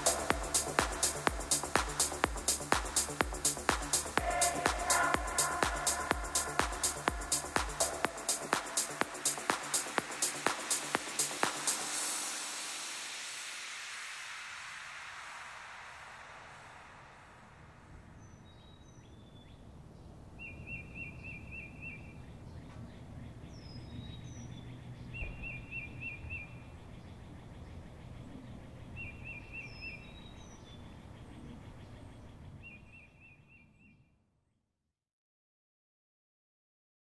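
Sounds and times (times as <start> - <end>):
low outdoor rumble: 0.0 - 12.3, 22.1 - 32.6.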